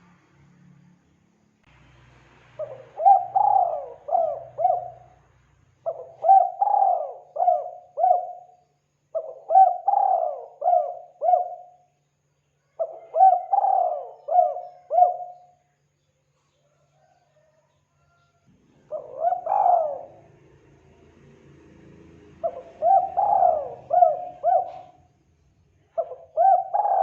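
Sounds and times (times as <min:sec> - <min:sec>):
dove cooing: 0:02.6 - 0:05.2, 0:05.8 - 0:08.6, 0:09.2 - 0:11.8, 0:12.7 - 0:15.6, 0:18.8 - 0:20.4, 0:22.4 - 0:25.1, 0:25.9 - 0:27.0.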